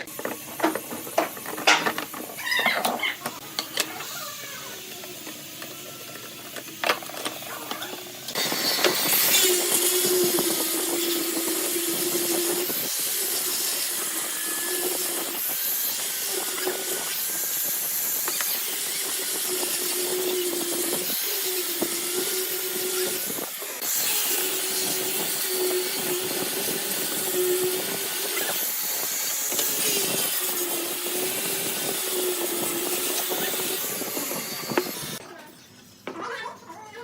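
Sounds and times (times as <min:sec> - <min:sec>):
turning tool cutting wood: 0:00.0 - 0:35.2
wood lathe hum: 0:08.3 - 0:35.2.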